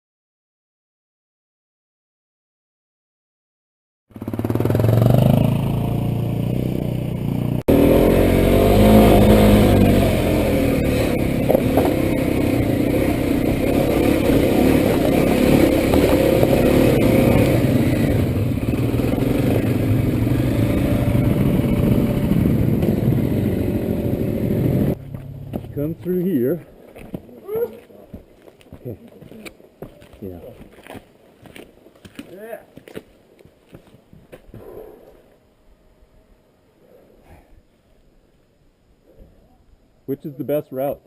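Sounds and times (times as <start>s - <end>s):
motorcycle engine running: 4.1s - 26.5s.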